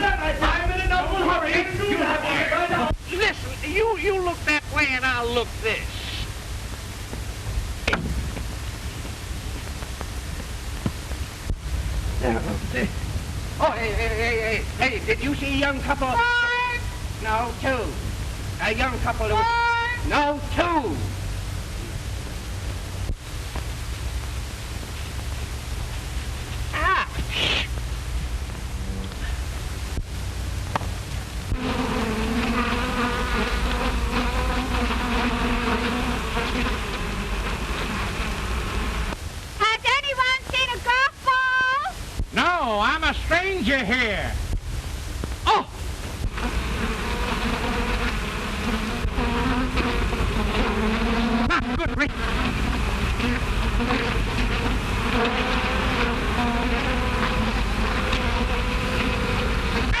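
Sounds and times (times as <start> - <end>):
bees buzzing: 0.0 - 6.3, 30.7 - 39.2, 46.2 - 60.0
old film soundtrack hiss: 0.0 - 60.0.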